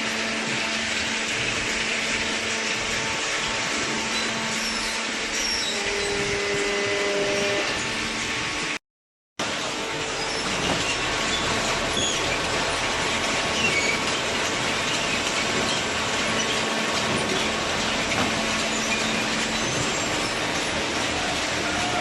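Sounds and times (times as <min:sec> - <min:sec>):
industrial machinery running: 0:00.0 - 0:08.8, 0:09.4 - 0:22.0
short high squeaks: 0:04.0 - 0:08.0.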